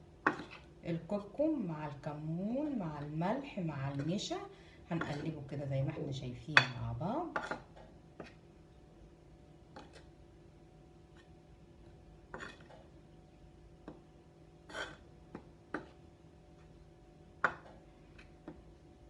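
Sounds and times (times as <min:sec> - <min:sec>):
spoon clinking and scraping bowl: 0:05.0 - 0:05.4, 0:12.4 - 0:12.7.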